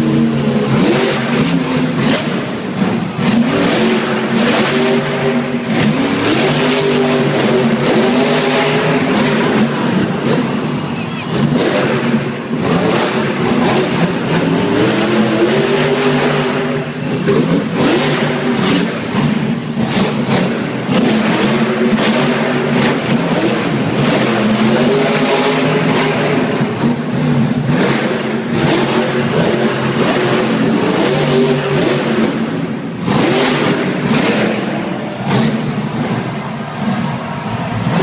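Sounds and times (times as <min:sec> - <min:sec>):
truck engine revving loudly: 0:00.0 - 0:38.0.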